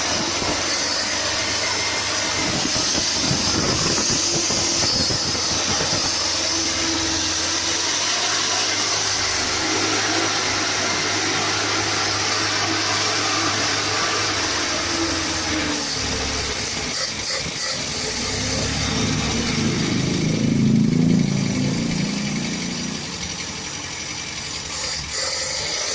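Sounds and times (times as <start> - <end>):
engine running: 0.0 - 25.9
low hum: 18.2 - 23.9.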